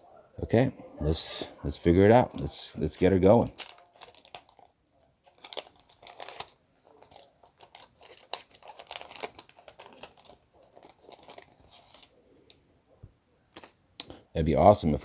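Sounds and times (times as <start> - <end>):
paper wrapper tearing and crinkling: 2.3 - 12.1, 13.5 - 13.8.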